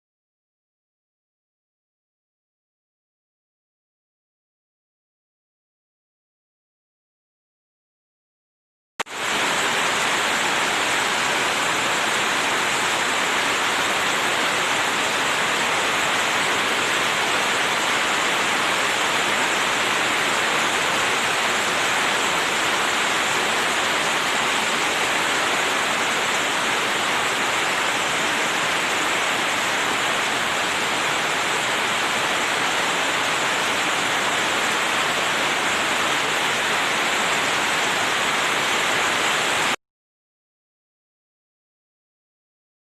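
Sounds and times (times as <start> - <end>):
heavy rain pouring: 9.1 - 39.8.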